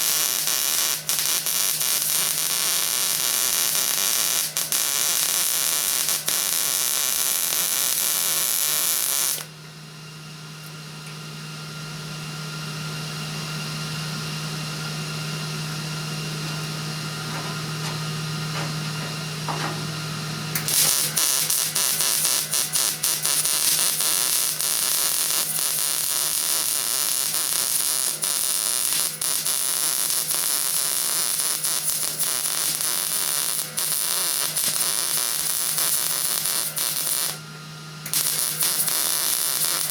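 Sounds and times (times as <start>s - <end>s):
welding arc crackling: 0.0s - 9.5s, 20.5s - 37.4s, 38.0s - 39.9s
steady low hum: 14.1s - 20.7s.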